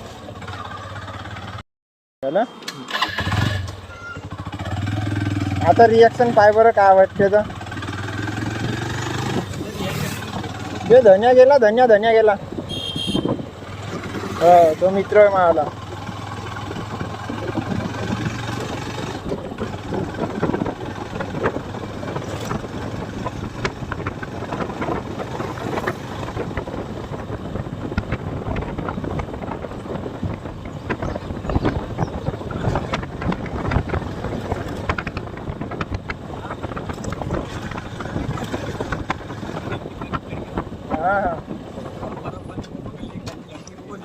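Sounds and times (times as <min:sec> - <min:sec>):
wind buffeting microphone: 0:04.7 - 0:44.0
motorcycle knocks and rattles: 0:13.3 - 0:44.0.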